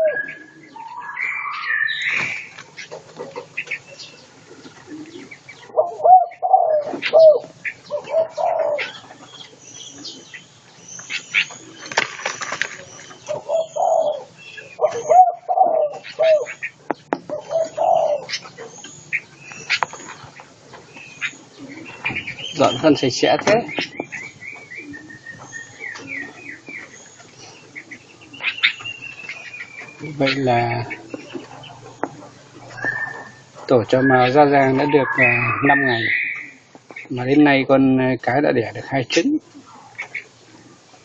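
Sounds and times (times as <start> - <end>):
dove cooing: 0.0 - 37.6, 38.3 - 41.0
small birds chirping: 0.0 - 41.0
wings fluttering: 2.0 - 5.6, 6.8 - 15.2, 16.0 - 35.3.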